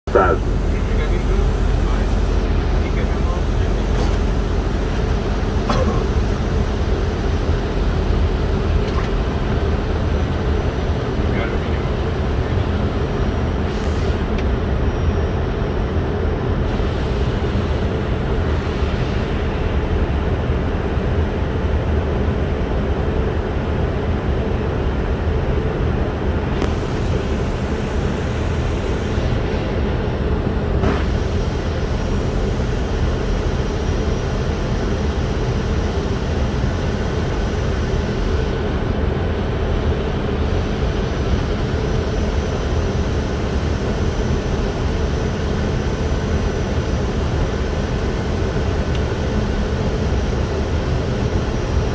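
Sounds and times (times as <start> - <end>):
aircraft engine hum: 0.0 - 51.9
rush of airflow: 26.4 - 46.3.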